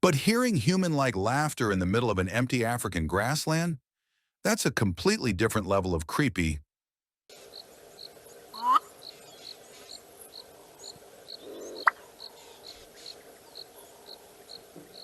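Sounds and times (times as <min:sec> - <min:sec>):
insects chirping: 0:07.3 - 0:15.0.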